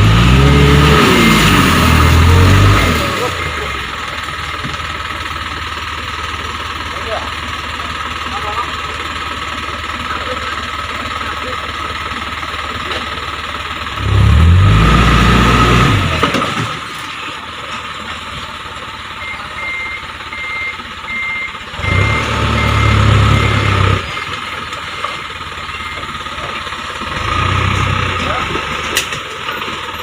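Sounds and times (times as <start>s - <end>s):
heavy diesel machinery running: 0.0s - 30.0s
reversing alarm beeping: 19.2s - 24.0s, 24.9s - 26.3s.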